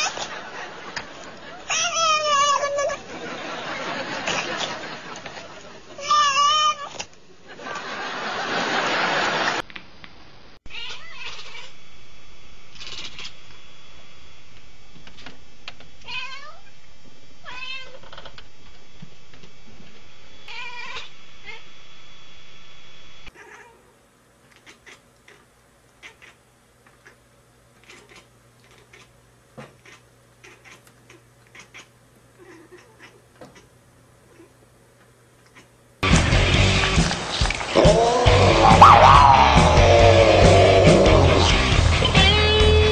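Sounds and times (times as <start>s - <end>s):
cat chattering calls: 10.7s - 11.7s, 24.6s - 25.4s, 26.0s - 27.2s, 27.8s - 29.1s, 29.8s - 33.7s, 38.5s - 40.5s.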